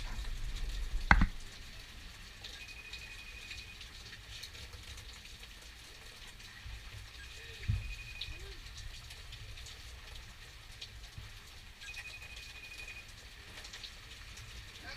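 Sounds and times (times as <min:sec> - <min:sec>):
rain falling: 0:00.0 - 0:14.9
sharp tap of a drop: 0:01.1 - 0:01.3.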